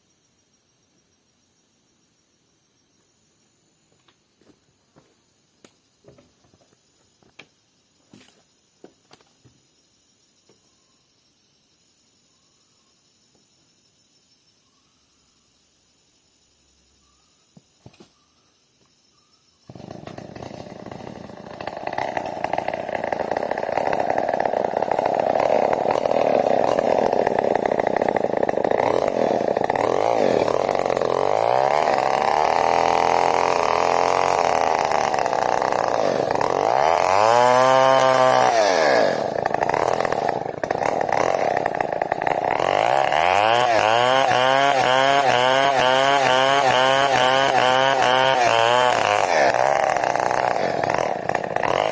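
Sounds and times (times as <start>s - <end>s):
chainsaw running at high revs: 19.7s - 51.9s.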